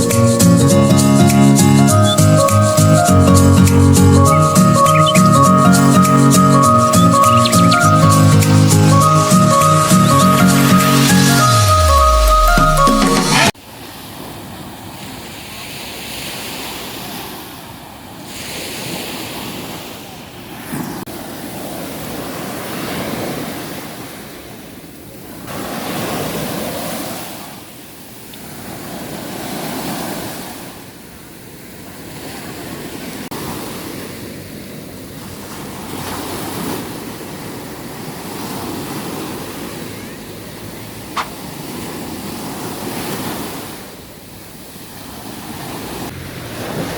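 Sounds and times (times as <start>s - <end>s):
waves breaking on shore: 0.0s - 46.9s.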